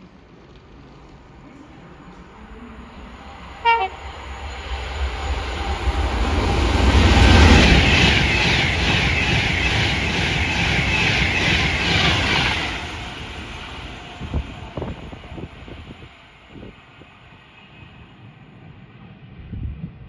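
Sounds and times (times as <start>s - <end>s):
train passing rumble: 0.0s - 20.0s
train horn blast: 3.6s - 4.2s.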